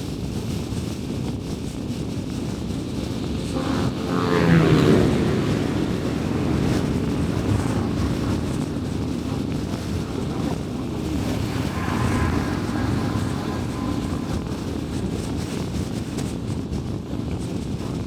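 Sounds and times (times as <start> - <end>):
engine hum: 1.9 - 17.0
tyre and road rumble: 1.9 - 18.0
passing vehicle engine: 2.3 - 16.5.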